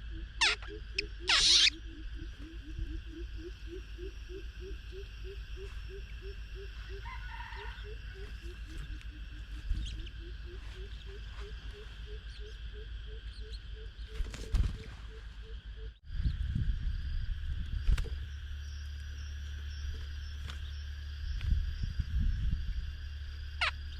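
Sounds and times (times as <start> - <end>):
low animal call: 0.0 - 13.9
high bird chirp: 0.4 - 3.2.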